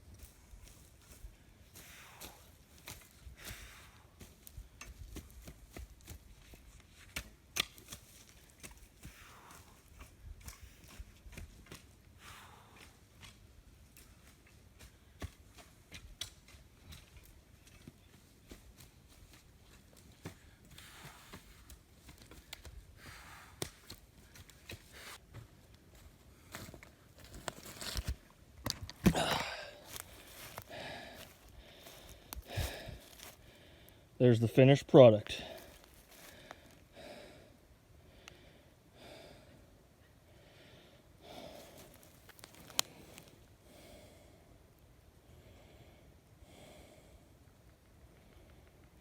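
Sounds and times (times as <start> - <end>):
faint slow breathing: 0.6 - 4.7, 9.0 - 11.1, 12.1 - 13.3, 20.3 - 21.7, 22.9 - 25.2, 29.1 - 34.2, 35.3 - 49.0
rake scraping soil and leaves: 27.2 - 28.2.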